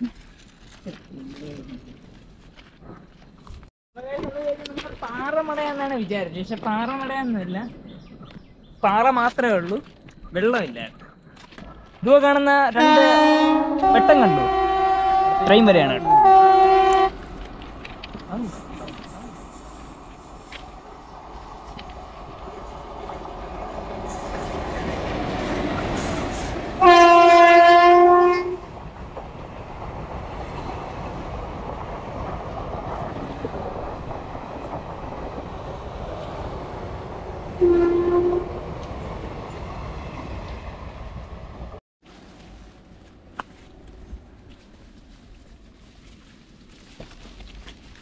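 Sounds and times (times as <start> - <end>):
train horn blast: 12.8 - 17.2, 26.8 - 28.6, 37.6 - 38.6
passenger train running past: 12.8 - 41.8.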